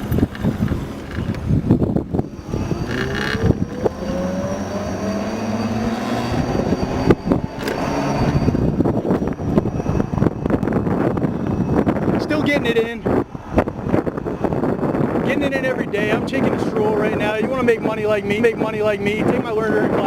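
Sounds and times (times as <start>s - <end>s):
electric motorcycle motor whine: 0.0s - 20.0s
wind buffeting microphone: 0.0s - 20.0s.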